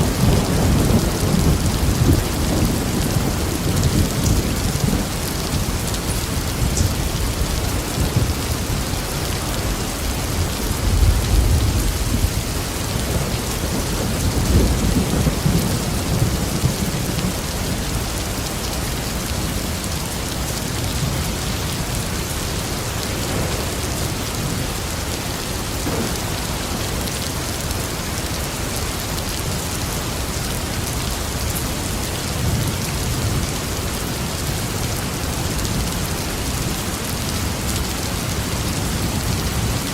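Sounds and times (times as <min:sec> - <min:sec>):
thunder rumbling: 0:00.0 - 0:25.0, 0:25.6 - 0:27.6
steady rain pouring: 0:00.0 - 0:39.9.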